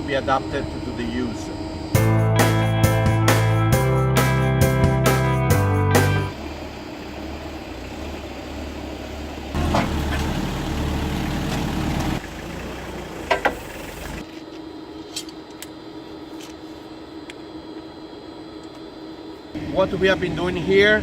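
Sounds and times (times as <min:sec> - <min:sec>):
forklift engine running: 0:05.7 - 0:14.2.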